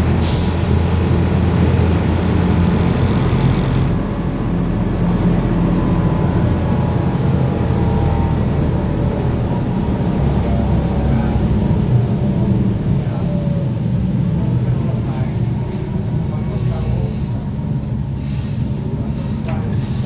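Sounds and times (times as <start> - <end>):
low rumble of road and running gear: 0.0 - 20.0.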